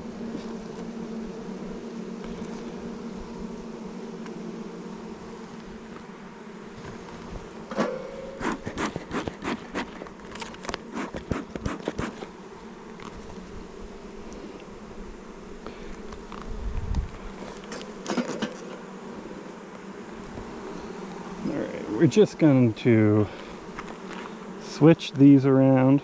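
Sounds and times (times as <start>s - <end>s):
honey bees buzzing: 0.0s - 26.0s
hive frames clicking and knocking: 6.7s - 13.4s, 15.9s - 18.9s.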